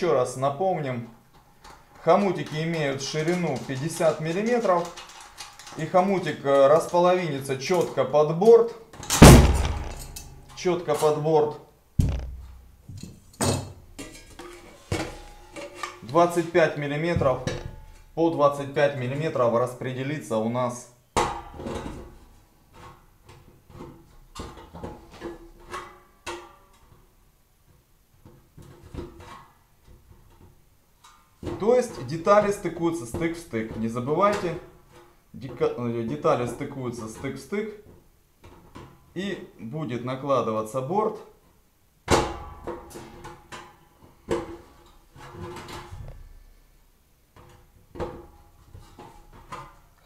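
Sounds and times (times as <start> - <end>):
metal pipe parts clinking: 1.3 - 11.2, 12.0 - 16.6
sharp metallic clank: 9.1 - 10.6
sharp knock on metal: 12.0 - 12.6.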